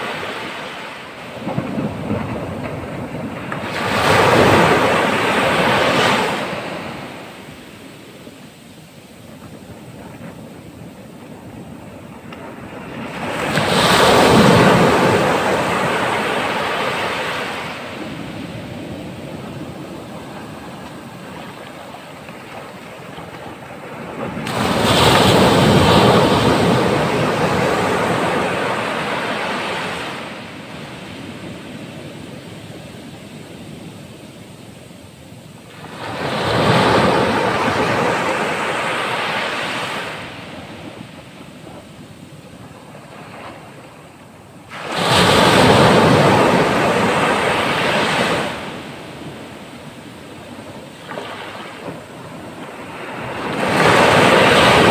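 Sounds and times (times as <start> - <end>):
wave breaking: 0.0 - 7.8, 9.4 - 31.9, 44.7 - 54.9
ocean surf washing: 0.0 - 54.9
wind buffeting microphone: 1.1 - 54.9.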